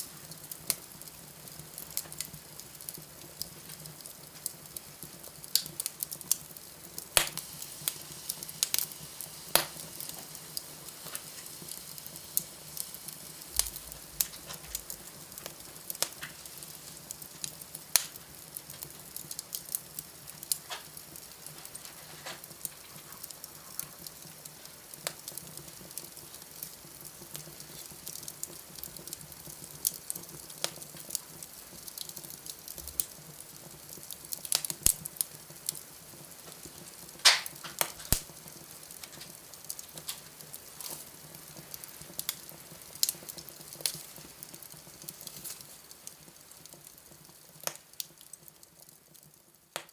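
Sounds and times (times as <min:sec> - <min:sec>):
wood fire crackling and popping: 0:00.0 - 0:49.9.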